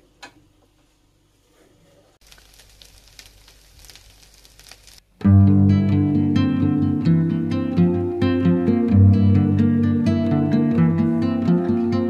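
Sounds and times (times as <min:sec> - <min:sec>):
noodles sizzling in a pan: 0:02.2 - 0:05.0.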